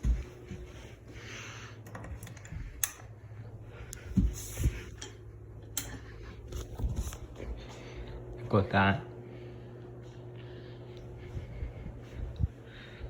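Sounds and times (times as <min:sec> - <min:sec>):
soft low thumps: 0:00.0 - 0:00.8, 0:11.1 - 0:13.0
ceiling fan humming: 0:00.0 - 0:13.0.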